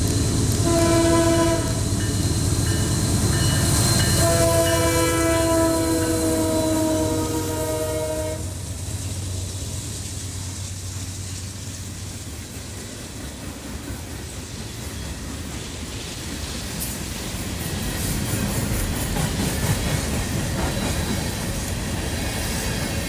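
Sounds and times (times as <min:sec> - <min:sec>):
passing train rumble: 0:00.0 - 0:23.0
train air horn chord: 0:00.6 - 0:01.8, 0:04.2 - 0:08.6.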